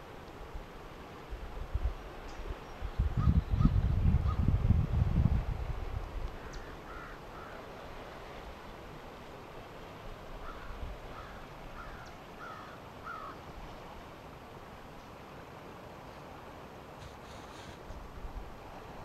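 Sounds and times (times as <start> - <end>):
faint outdoor hiss: 0.0 - 19.0
distant birds calling: 6.3 - 8.1, 10.4 - 13.6.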